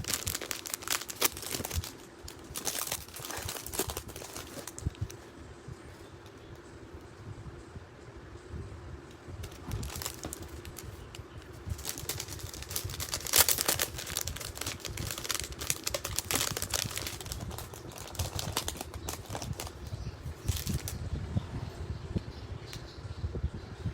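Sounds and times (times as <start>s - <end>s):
plastic packaging crinkling: 0.0s - 5.2s, 9.4s - 21.0s.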